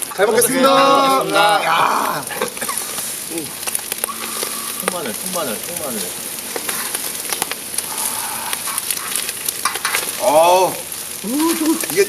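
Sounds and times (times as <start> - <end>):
food sizzling on a griddle: 0.0 - 12.0
voiced exclamation: 0.1 - 2.5, 7.9 - 8.7, 10.2 - 12.0.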